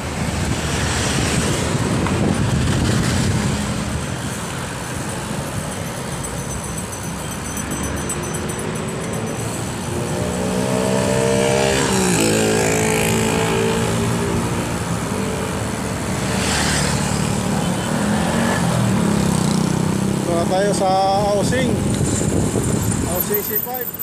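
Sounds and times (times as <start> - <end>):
motor vehicle engine passing: 0.0 - 4.1, 8.2 - 20.6
wind and road noise: 0.0 - 24.0.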